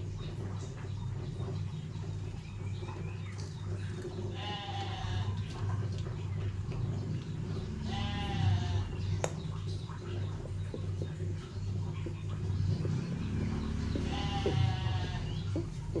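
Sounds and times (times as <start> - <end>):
goat or sheep bleating: 4.3 - 5.4, 7.8 - 9.0, 13.7 - 15.6.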